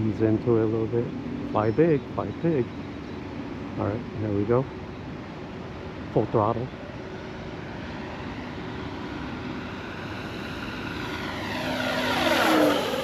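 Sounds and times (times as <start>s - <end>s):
whoosh of plane passing: 6.8s - 13.0s
model plane propeller buzzing: 7.2s - 13.0s.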